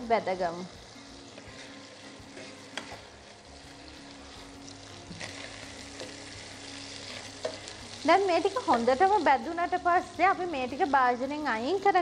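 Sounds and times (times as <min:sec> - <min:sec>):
food sizzling in hot oil: 0:00.0 - 0:12.0
wooden spatula stirring in pan: 0:01.3 - 0:03.2, 0:04.1 - 0:08.9.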